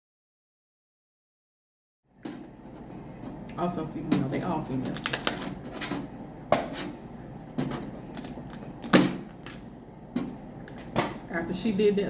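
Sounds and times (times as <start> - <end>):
crab shells cracking: 4.9 - 5.6, 8.1 - 9.6.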